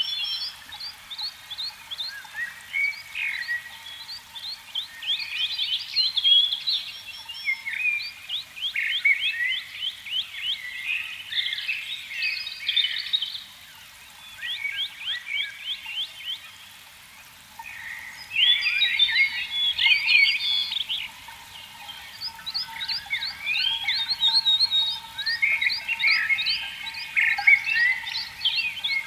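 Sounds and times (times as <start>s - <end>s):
frogs chirping: 17.3s - 29.0s.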